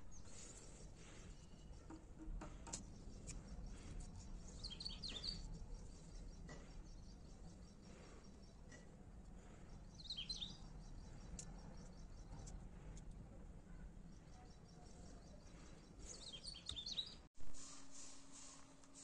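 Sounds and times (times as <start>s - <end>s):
faint outdoor background noise: 0.0s - 19.0s
small bird chirping: 2.8s - 8.8s, 9.7s - 12.7s, 14.1s - 17.3s.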